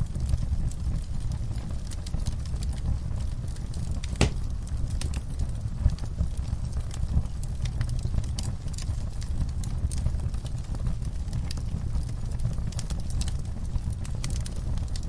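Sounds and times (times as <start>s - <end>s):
wood fire crackling: 0.0s - 15.0s
loud fire pop: 4.0s - 4.5s.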